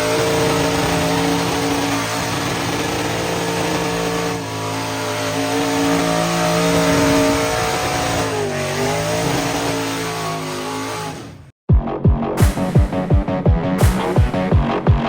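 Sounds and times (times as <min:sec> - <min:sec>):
truck engine at high revs: 0:00.0 - 0:11.5.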